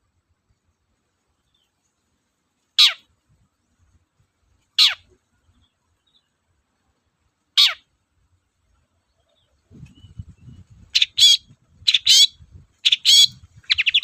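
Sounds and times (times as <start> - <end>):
bird harsh downward calls: 2.8 - 3.1, 4.8 - 5.2, 7.6 - 7.9, 10.9 - 14.0.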